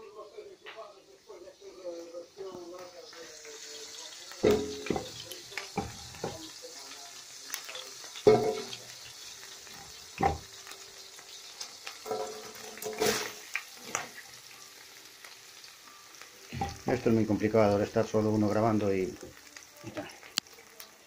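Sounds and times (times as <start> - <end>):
onion sizzling in hot oil: 0.1 - 21.0
utensil clanking against pan: 4.4 - 6.5, 8.2 - 8.8, 11.8 - 14.2.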